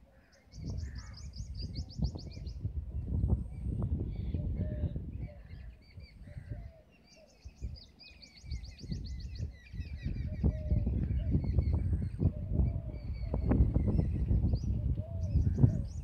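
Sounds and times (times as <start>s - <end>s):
low rumbling microphone noise: 0.0s - 6.7s, 8.4s - 16.0s
small birds chirping: 0.0s - 16.0s.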